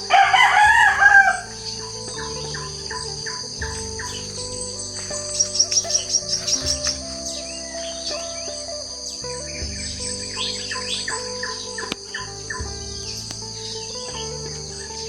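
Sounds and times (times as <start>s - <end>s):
birds calling: 0.0s - 15.0s
insects trilling: 0.0s - 15.0s.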